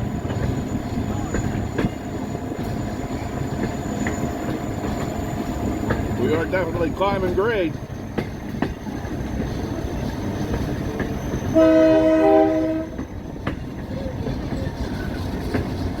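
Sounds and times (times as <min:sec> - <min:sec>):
diesel locomotive rumbling: 0:00.0 - 0:16.0
locomotive air horn chord: 0:11.5 - 0:13.0.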